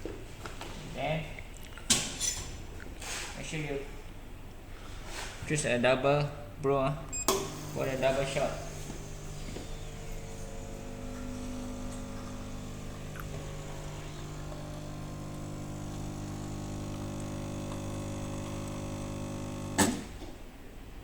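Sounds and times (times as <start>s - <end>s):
espresso machine pump humming: 7.3s - 20.3s.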